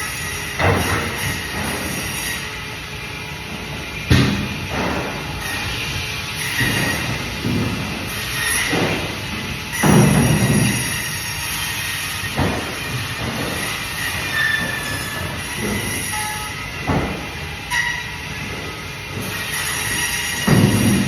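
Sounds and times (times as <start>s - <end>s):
sharp knocks: 20.4s - 21.0s.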